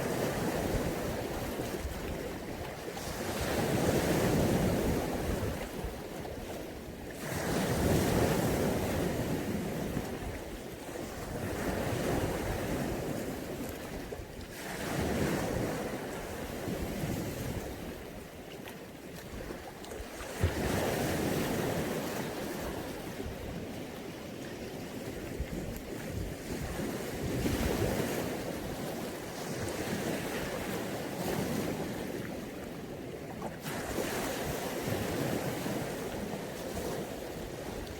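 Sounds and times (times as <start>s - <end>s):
sea waves breaking on beach: 0.0s - 37.9s.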